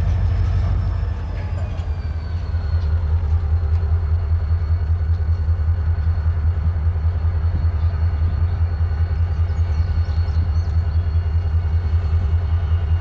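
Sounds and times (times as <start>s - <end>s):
diesel locomotive rumbling past: 0.0s - 13.0s.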